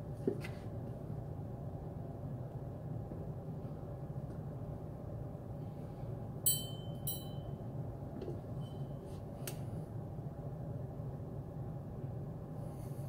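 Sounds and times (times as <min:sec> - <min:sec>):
low room hum: 0:00.0 - 0:13.0
sharp ringing clinks: 0:06.5 - 0:07.6.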